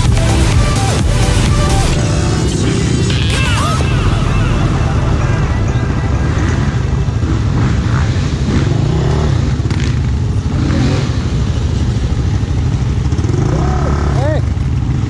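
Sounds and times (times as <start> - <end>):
quad engine idling: 0.0 - 10.4
quads revving past: 0.0 - 11.8.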